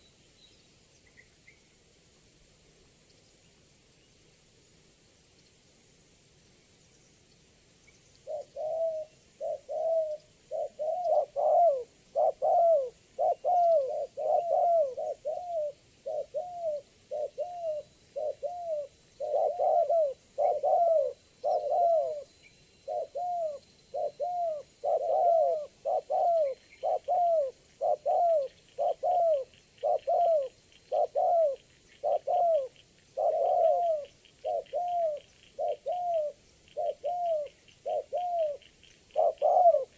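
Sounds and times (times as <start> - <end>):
doves cooing: 8.2 - 39.9.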